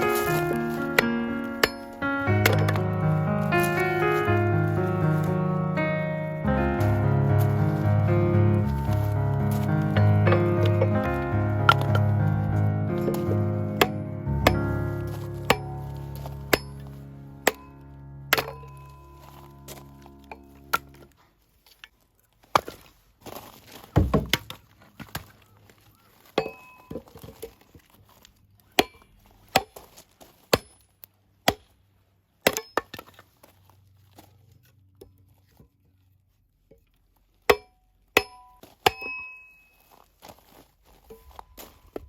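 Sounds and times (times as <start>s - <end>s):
axe splitting wood knocks: 15.5s - 16.8s, 24.0s - 25.2s.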